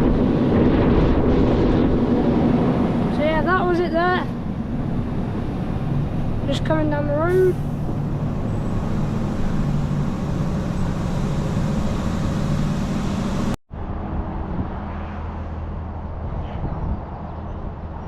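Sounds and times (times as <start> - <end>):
heavy lorry driving: 0.0 - 16.4
low hum: 0.0 - 16.4.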